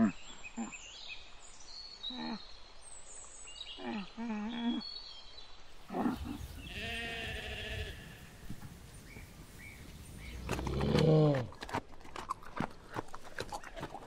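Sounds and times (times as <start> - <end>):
sheep bleating: 5.9 - 8.6.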